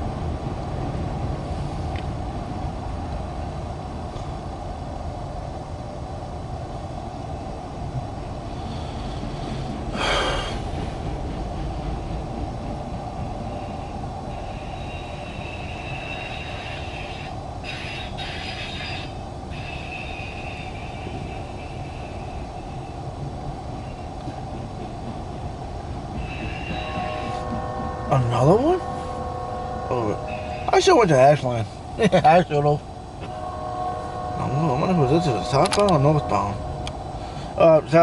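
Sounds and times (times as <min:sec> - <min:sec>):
freight train rumbling past: 0:00.0 - 0:38.0
high thin wheel tones: 0:26.2 - 0:31.1.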